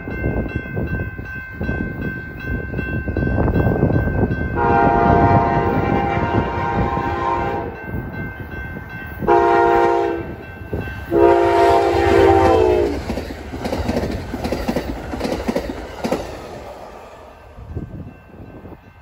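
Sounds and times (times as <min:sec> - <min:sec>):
train cars rumbling: 0:00.0 - 0:19.0
wheels clickety-clack on rail: 0:00.0 - 0:19.0
locomotive horn blasts: 0:04.6 - 0:07.8, 0:09.2 - 0:10.4, 0:11.1 - 0:13.0.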